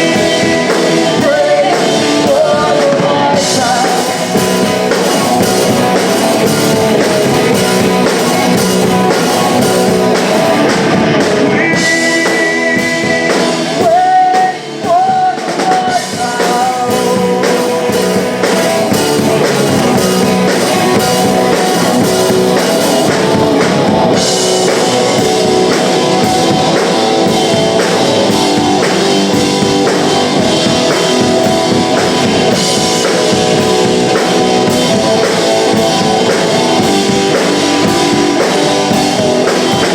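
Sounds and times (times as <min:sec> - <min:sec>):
person singing: 0:00.0 - 0:04.7, 0:11.3 - 0:23.2
punk rock band playing: 0:00.0 - 0:39.9.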